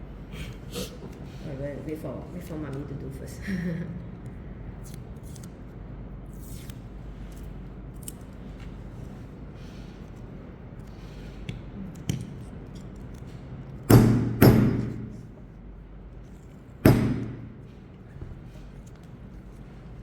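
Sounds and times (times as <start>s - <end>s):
hammer striking metal stamp: 13.9s - 15.3s, 16.8s - 17.7s.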